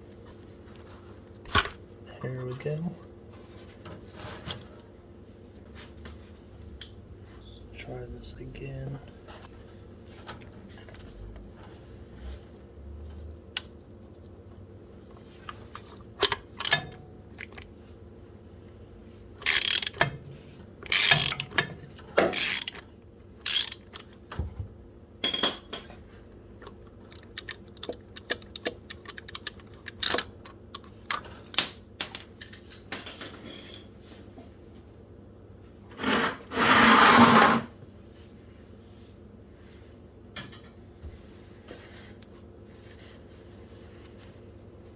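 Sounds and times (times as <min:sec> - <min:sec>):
ratchet wrench clicking: 0:19.4 - 0:20.0, 0:20.9 - 0:21.6, 0:22.3 - 0:22.8, 0:23.4 - 0:23.8.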